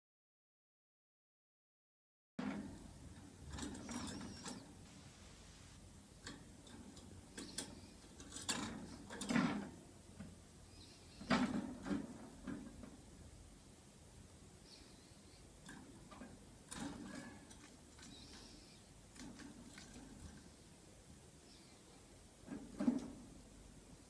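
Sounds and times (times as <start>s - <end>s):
clicks and taps in a cage: 6.2s - 10.4s, 15.6s - 18.5s, 19.1s - 20.4s, 22.4s - 23.3s
faint high bird chirp: 10.7s - 11.3s, 14.6s - 15.5s, 21.4s - 22.0s.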